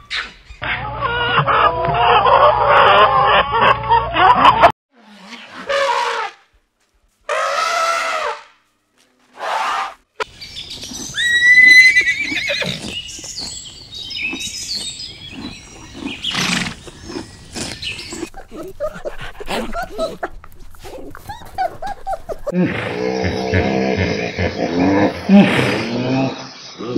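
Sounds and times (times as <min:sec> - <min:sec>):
horse whinnying: 0:11.1 - 0:13.0, 0:16.2 - 0:16.8
horse chewing grass: 0:12.7 - 0:21.8.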